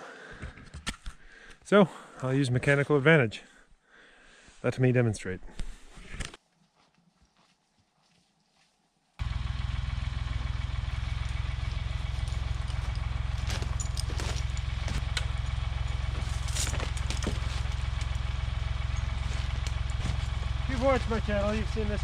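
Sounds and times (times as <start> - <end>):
tractor engine running: 9.2 - 22.0.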